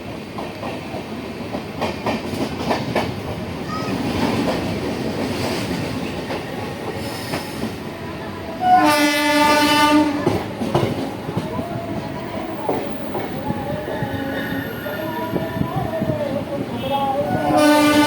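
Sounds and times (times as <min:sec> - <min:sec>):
train rumble and rail clatter: 0:00.0 - 0:18.0
train horn blast: 0:08.6 - 0:10.4, 0:16.8 - 0:18.0.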